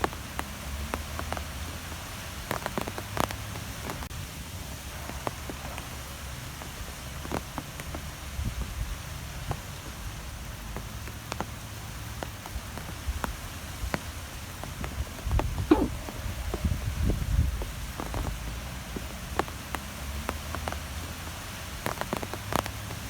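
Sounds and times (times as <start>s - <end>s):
wind blowing: 15.6s - 16.1s.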